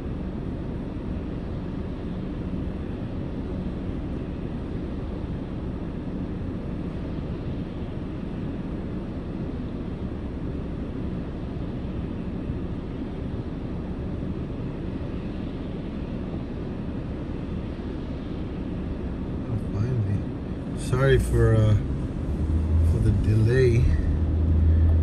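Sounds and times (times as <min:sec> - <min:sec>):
car idling rumble: 0:19.5 - 0:25.0.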